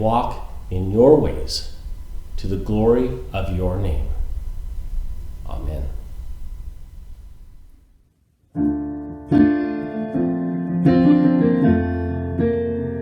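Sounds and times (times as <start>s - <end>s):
piano playing hymn chords: 8.6s - 13.0s.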